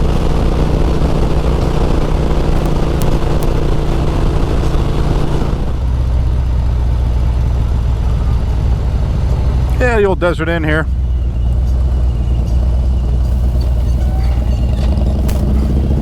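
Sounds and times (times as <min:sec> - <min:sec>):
motorcycle engine at speed: 0:00.0 - 0:09.7, 0:11.0 - 0:16.0.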